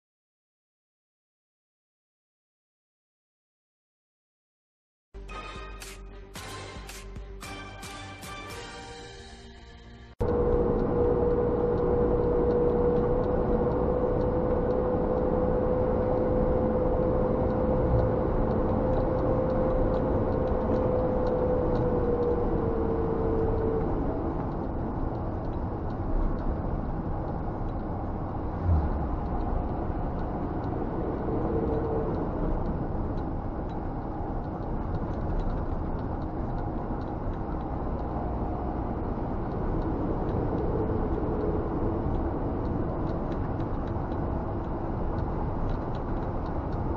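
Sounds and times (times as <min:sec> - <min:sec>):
road noise: 0:08.6 - 0:46.9
steady whine: 0:10.2 - 0:33.8.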